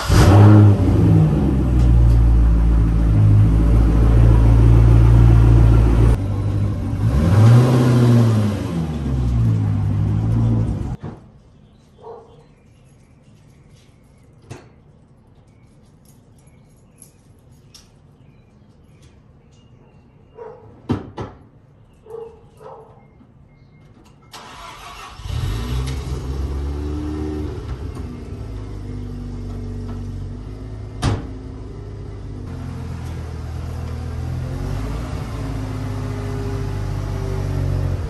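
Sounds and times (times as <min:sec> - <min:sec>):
rotary engine starting and idling: 0:00.0 - 0:11.0, 0:24.3 - 0:30.0.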